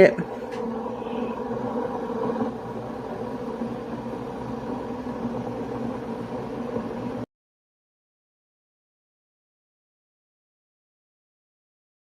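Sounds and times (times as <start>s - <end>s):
appliance motor humming: 0.0s - 7.2s.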